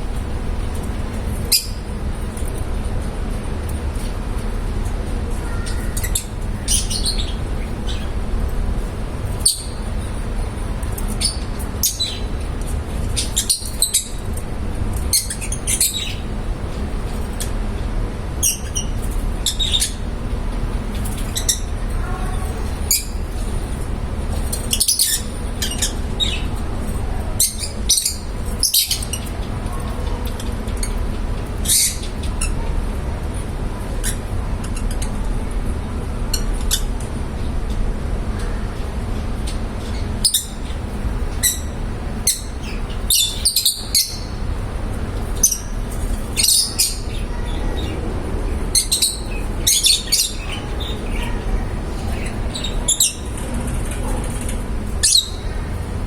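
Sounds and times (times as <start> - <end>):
parrots chirping and squawking: 0.7 - 1.9, 5.3 - 8.2, 9.2 - 14.4, 15.0 - 17.5, 18.4 - 32.6, 34.0 - 35.1, 39.9 - 56.0.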